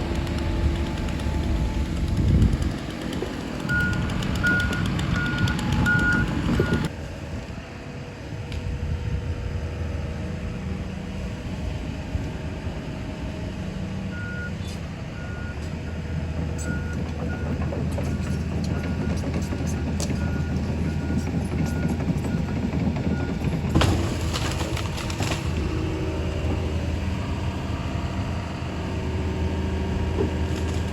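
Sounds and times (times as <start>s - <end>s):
diesel engine drone: 0.0s - 30.9s
backup alarm beeping: 3.7s - 6.9s.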